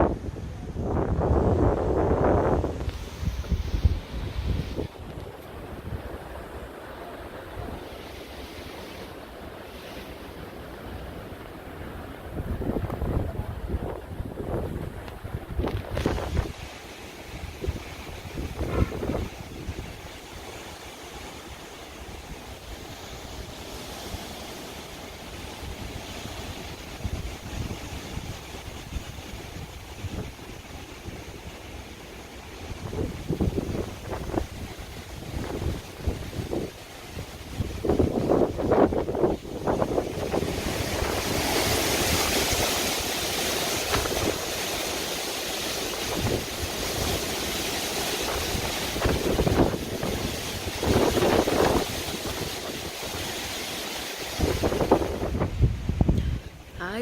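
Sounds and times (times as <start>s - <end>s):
strong wind blowing: 0.0s - 57.0s
wind gusts buffeting microphone: 0.0s - 57.0s.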